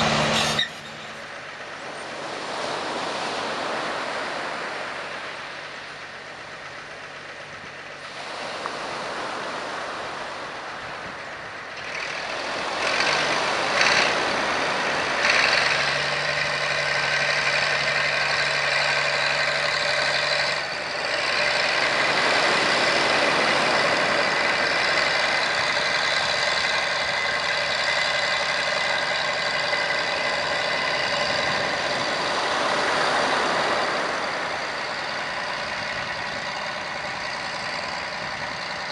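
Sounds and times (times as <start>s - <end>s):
heavy construction machinery running: 0.0s - 38.9s.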